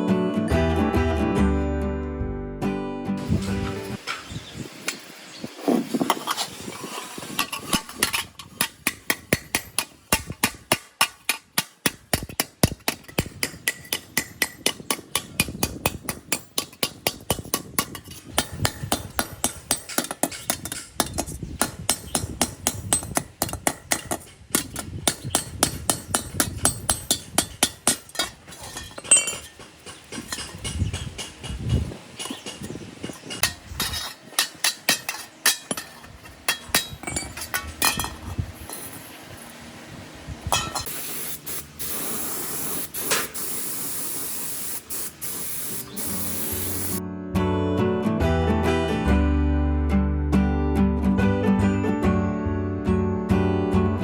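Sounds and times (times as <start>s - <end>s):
hammer striking metal: 8.6s - 38.2s.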